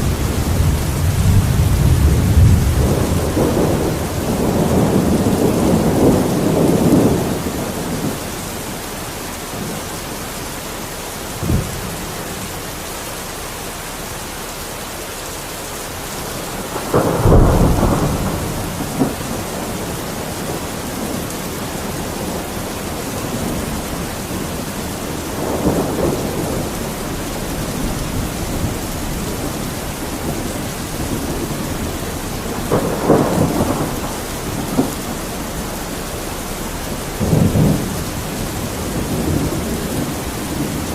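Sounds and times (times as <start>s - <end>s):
sharp thunder crack: 0.0s - 8.2s, 16.5s - 21.2s, 23.2s - 40.9s
thunder rumbling: 0.0s - 14.5s, 15.4s - 40.9s
steady rain: 0.0s - 40.9s.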